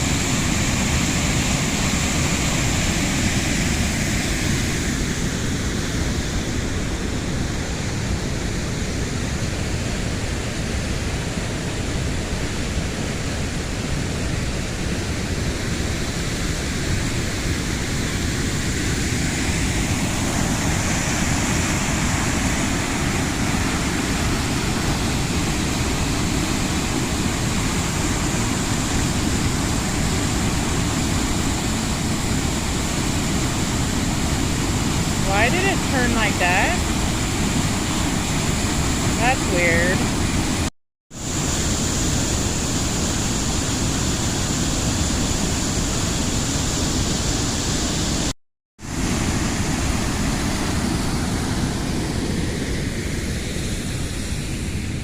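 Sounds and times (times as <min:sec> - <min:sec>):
waterfall rushing: 0:19.3 - 0:40.6.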